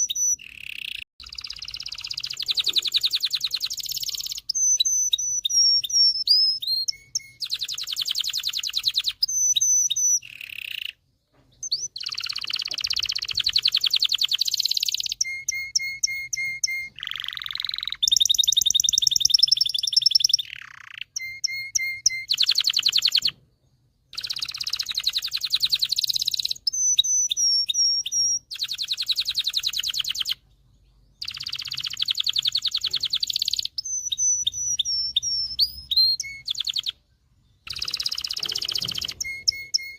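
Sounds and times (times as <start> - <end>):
canary singing trills and whistles: 0.0 - 39.9.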